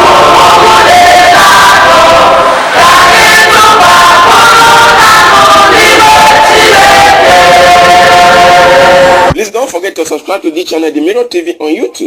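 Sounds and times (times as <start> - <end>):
group singing a church song: 0.0 - 9.4.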